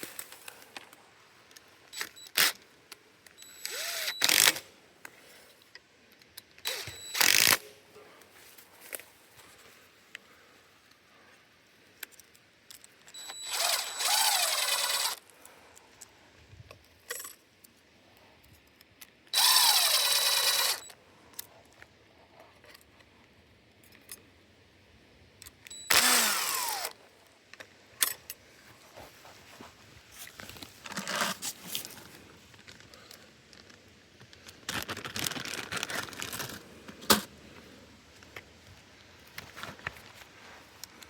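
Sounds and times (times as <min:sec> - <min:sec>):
small power tool whirring: 0:03.4 - 0:04.7, 0:06.6 - 0:07.6, 0:13.2 - 0:15.3, 0:19.4 - 0:20.9, 0:25.7 - 0:27.0.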